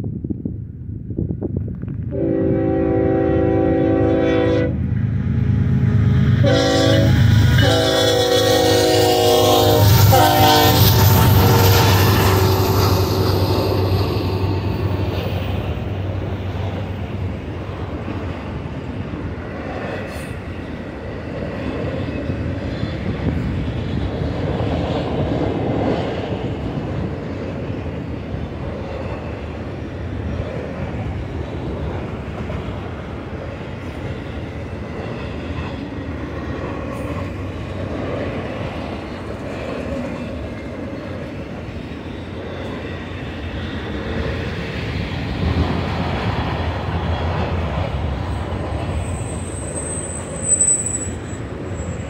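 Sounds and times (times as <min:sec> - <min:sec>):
freight train rolling by: 0:00.0 - 0:52.0
steel wheels running on rails: 0:05.0 - 0:52.0.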